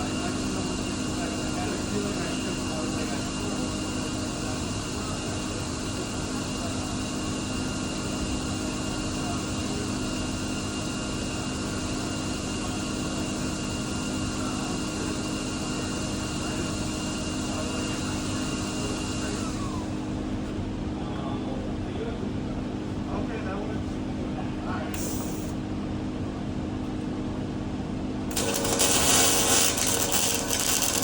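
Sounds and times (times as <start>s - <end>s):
welding arc hissing and sizzling: 25.0s - 25.6s, 28.3s - 31.0s.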